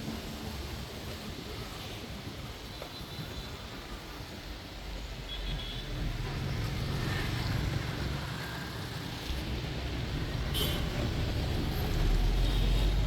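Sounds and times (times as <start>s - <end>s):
road traffic: 0.0s - 13.0s
bus rumbling: 6.0s - 13.0s.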